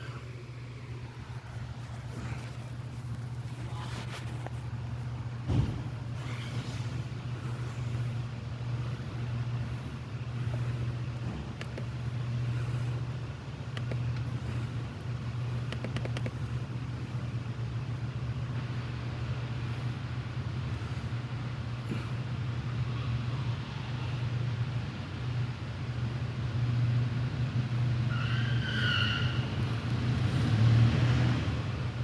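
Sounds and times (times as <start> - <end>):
low engine hum: 0.0 - 32.0
light clicks: 11.6 - 11.9, 13.7 - 14.3, 15.7 - 16.4.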